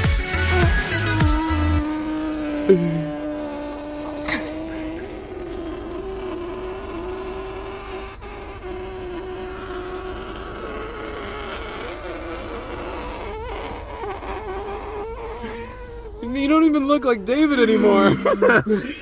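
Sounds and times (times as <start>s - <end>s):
electric hair clippers buzzing: 0.0s - 5.4s.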